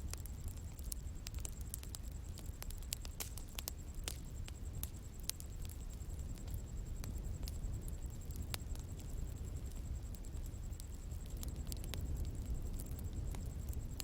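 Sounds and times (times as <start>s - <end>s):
bonfire crackling and popping: 0.0s - 14.0s
flames rumbling: 0.0s - 14.0s.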